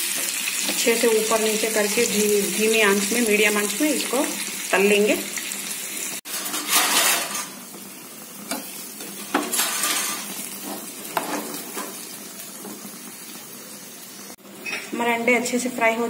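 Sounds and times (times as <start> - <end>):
eggs sizzling in hot oil: 0.0 - 14.8
steel spoon scraping a pan: 6.3 - 7.6, 8.5 - 12.0.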